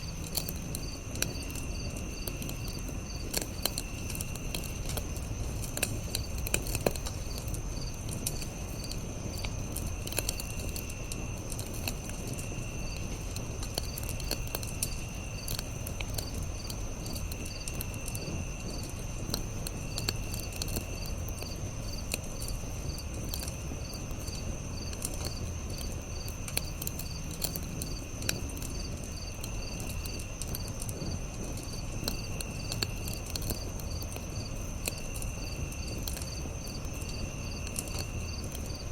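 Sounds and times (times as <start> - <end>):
campfire crackling and popping: 0.0 - 38.9
high insect trill: 0.0 - 38.9
repeated cricket chirp: 0.0 - 38.9
insect buzz: 23.6 - 38.9.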